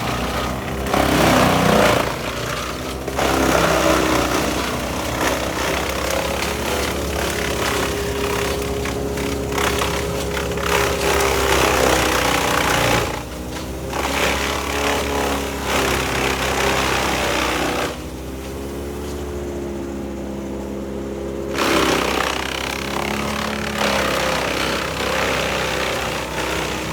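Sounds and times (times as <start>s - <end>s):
machine cutting into wood: 0.0s - 18.1s, 21.5s - 26.9s
petrol engine running: 0.0s - 26.9s.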